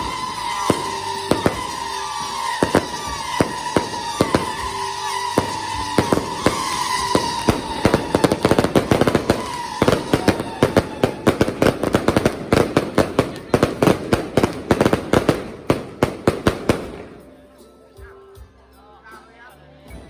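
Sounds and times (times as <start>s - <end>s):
high falling whistle: 0.0s - 15.7s
fireworks bangs and crackles: 0.0s - 17.4s.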